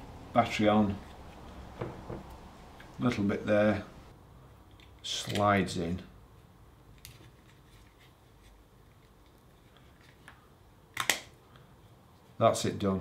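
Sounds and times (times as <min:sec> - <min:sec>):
plastic part snapping into place: 0:11.0 - 0:11.3.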